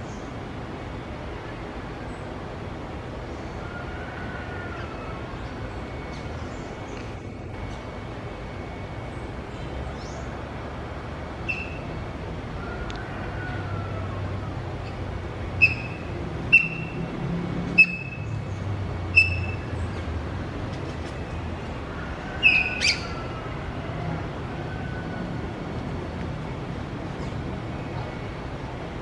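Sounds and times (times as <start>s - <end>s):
bird chirping: 11.4s - 12.0s, 14.8s - 17.0s, 17.8s - 20.1s, 22.4s - 23.2s.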